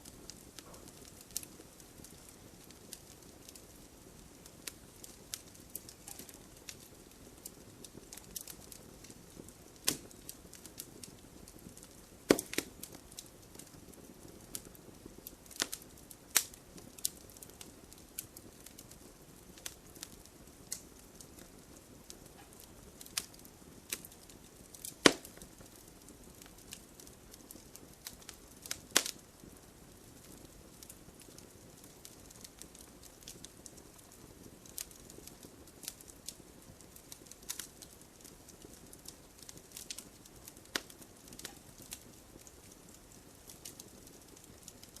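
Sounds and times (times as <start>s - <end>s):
wood fire crackling: 0.0s - 45.0s.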